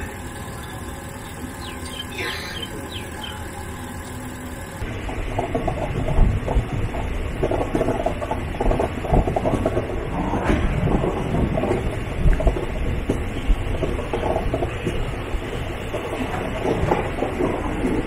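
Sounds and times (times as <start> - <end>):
birds chirping: 0.0 - 4.8
train coach rumbling and rattling: 0.0 - 18.0.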